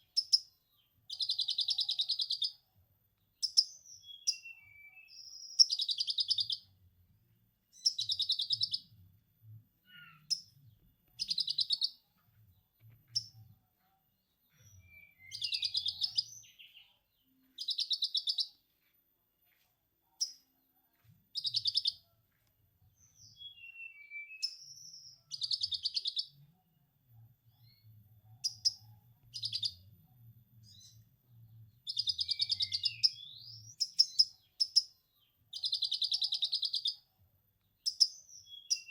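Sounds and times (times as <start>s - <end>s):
bird chattering and whistling: 14.9s - 16.4s, 31.9s - 34.8s.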